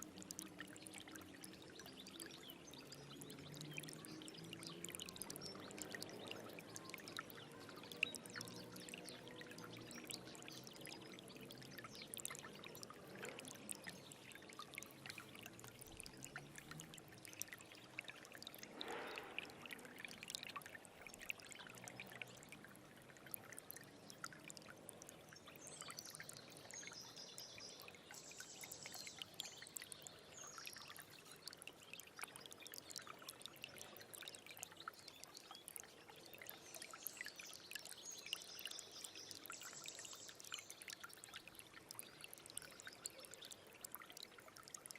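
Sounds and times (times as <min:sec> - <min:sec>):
small stream trickling: 0:00.0 - 0:44.9
water splash: 0:18.6 - 0:20.2.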